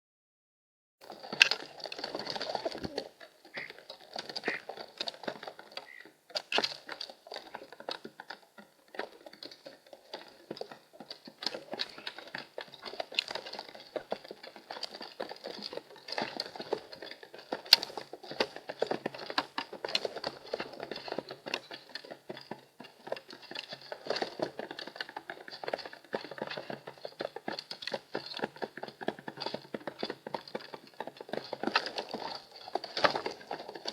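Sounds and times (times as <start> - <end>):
birds tapping on feeder tray: 4.4 - 4.7.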